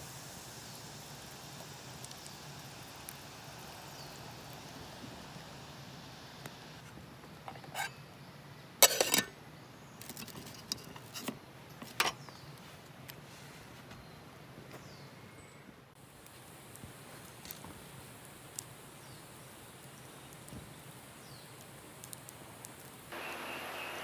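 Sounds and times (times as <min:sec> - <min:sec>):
steady low background noise: 0:00.0 - 0:10.0.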